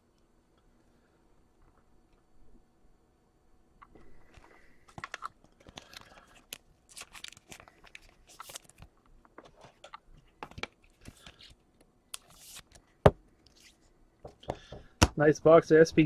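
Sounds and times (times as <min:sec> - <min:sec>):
packaging crinkling and rustling: 0:04.9 - 0:11.6.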